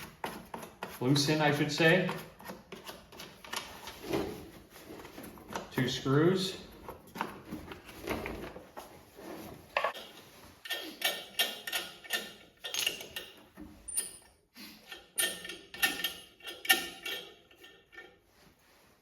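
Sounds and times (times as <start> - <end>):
hand tool clicking on screws: 9.9 - 14.2, 14.8 - 18.1.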